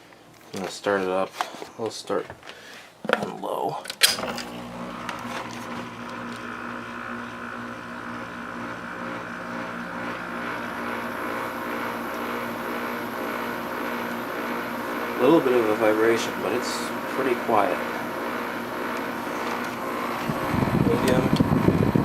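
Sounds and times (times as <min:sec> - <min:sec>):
air conditioner fan humming: 0:03.5 - 0:22.0
air conditioner control click: 0:20.9 - 0:21.5.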